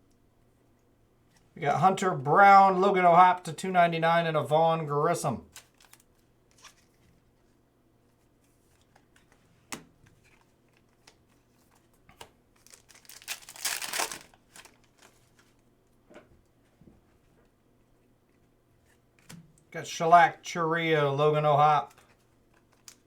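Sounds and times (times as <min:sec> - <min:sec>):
foil wrapper crinkling and tearing: 0:05.5 - 0:06.9, 0:12.5 - 0:15.6, 0:21.8 - 0:23.0.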